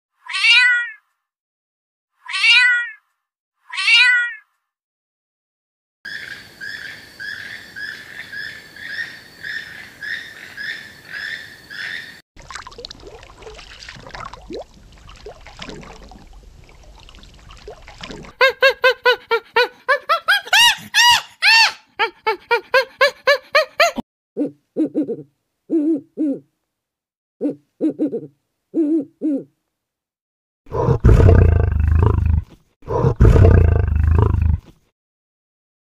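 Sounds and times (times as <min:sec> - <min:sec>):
cat meowing: 0:00.2 - 0:01.0, 0:02.2 - 0:03.0, 0:03.7 - 0:04.4.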